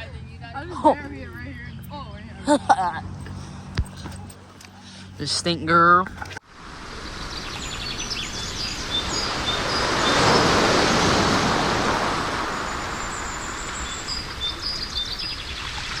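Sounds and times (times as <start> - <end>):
rush of noise: 6.5 - 16.0
small birds chirping: 7.0 - 16.0.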